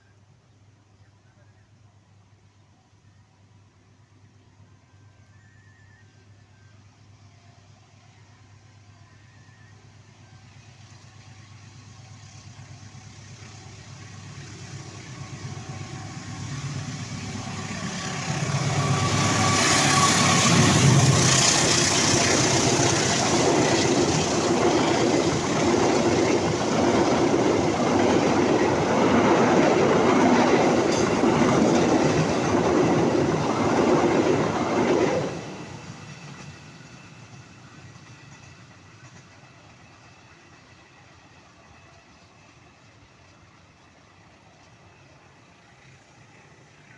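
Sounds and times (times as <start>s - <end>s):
train engine rumble: 0.0s - 46.9s
train wheels rattling over rails: 12.3s - 41.0s.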